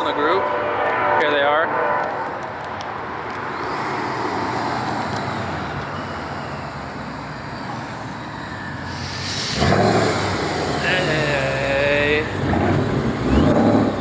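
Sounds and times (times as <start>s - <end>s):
supercharged car engines running: 3.2s - 14.0s
rising hiss: 3.6s - 12.4s.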